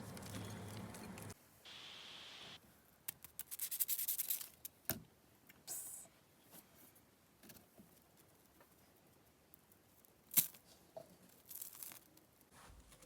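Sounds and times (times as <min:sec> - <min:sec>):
small clicks and crackles: 0:00.0 - 0:01.4, 0:07.4 - 0:13.0
short hiss: 0:01.7 - 0:02.6.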